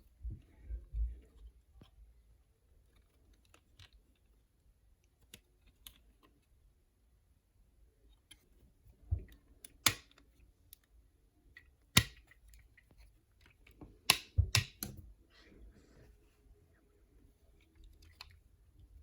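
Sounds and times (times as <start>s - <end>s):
plastic toy parts clicking: 9.6s - 10.9s.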